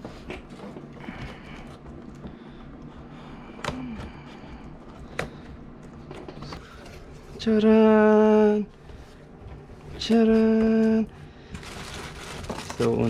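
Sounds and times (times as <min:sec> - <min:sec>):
packaging rustling: 0:11.5 - 0:13.0.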